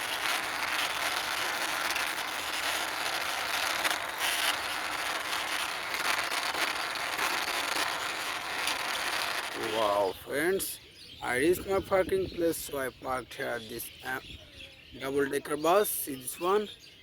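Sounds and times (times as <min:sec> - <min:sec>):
small clicks: 0:00.0 - 0:09.8
toy bus wheels rolling: 0:00.0 - 0:10.1.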